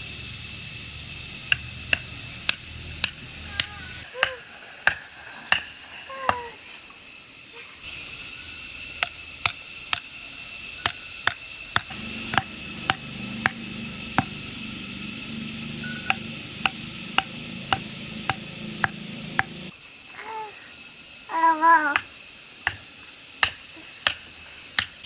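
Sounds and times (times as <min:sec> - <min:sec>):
high-pitched hum: 0:00.0 - 0:04.4, 0:07.9 - 0:19.7
hand tool knocking on wood: 0:01.4 - 0:06.4, 0:10.8 - 0:19.7, 0:22.0 - 0:25.0.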